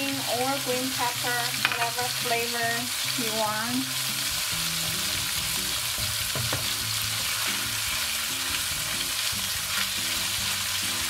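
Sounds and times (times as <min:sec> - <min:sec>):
food sizzling in hot oil: 0:00.0 - 0:11.0
sharp knock: 0:06.3 - 0:06.8.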